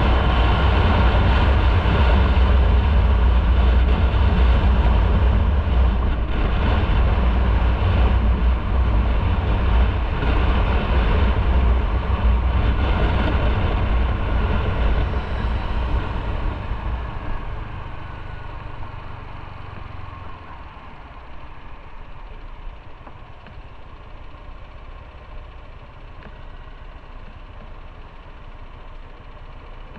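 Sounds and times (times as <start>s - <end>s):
wind noise: 0.0s - 19.4s
motorcycle engine rumbling: 0.0s - 29.9s.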